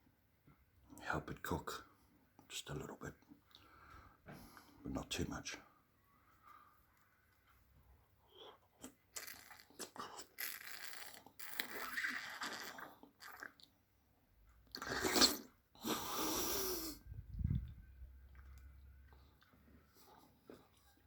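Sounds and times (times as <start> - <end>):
wet sucking slurps: 8.3 - 13.7, 14.7 - 17.7.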